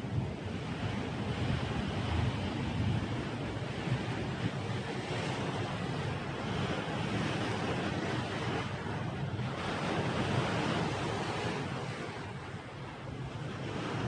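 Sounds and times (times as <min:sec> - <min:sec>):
sea surf washing onto shore: 0:00.0 - 0:14.0
wind rumbling on microphone: 0:00.0 - 0:14.0.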